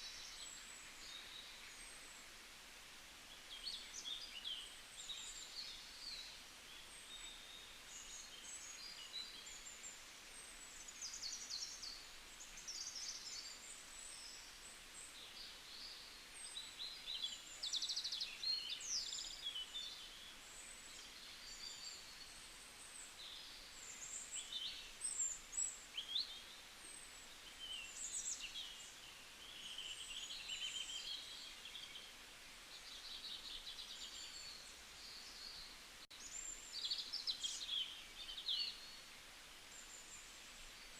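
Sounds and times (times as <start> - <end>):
faint steady hiss: 0.0 - 40.9
small birds chirping and trilling: 3.4 - 40.9.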